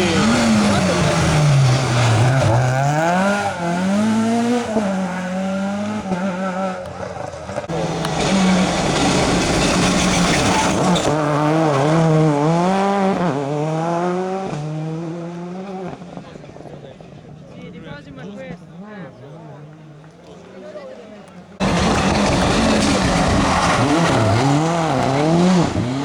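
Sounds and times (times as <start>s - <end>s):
rally car engine revving: 0.0s - 17.5s, 21.6s - 26.0s
tyre noise: 19.5s - 26.0s.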